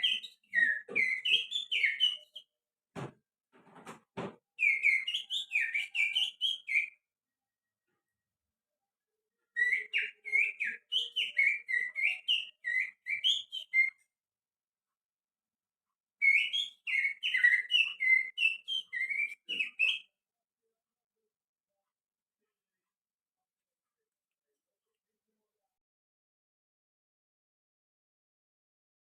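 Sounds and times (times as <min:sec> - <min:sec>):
finger whistling birdsong: 0:00.0 - 0:02.5, 0:04.6 - 0:07.0, 0:09.6 - 0:14.0, 0:16.2 - 0:20.1.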